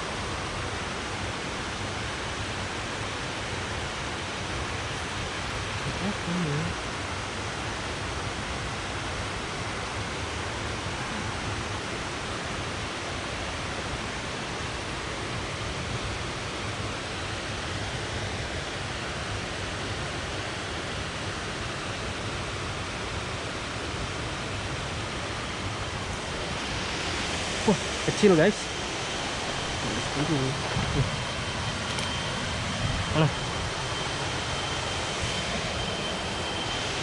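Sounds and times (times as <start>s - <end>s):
waterfall rushing: 25.9s - 32.5s.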